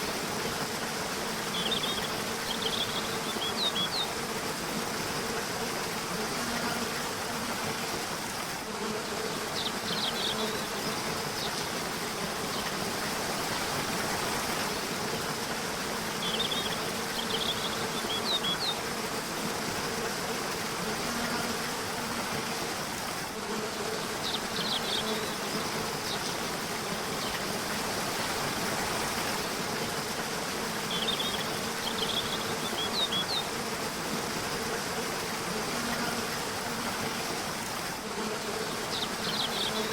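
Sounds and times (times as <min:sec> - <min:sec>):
river water rushing: 0:11.0 - 0:20.8, 0:25.2 - 0:39.7.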